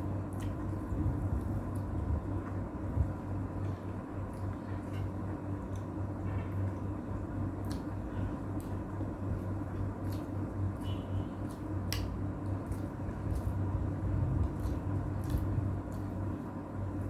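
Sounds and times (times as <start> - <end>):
steady low hum: 0.0 - 17.0
person chewing: 9.4 - 17.0.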